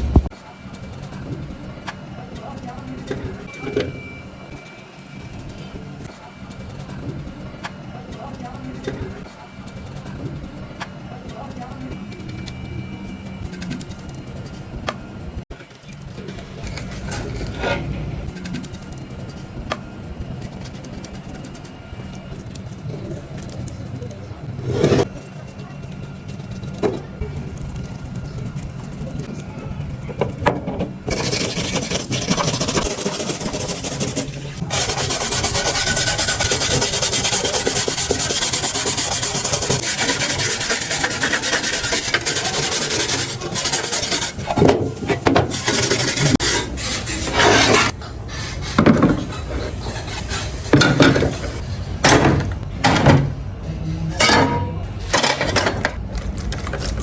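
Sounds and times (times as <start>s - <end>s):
abrasive scraping on metal scale: 24.4s - 25.2s, 31.1s - 51.6s.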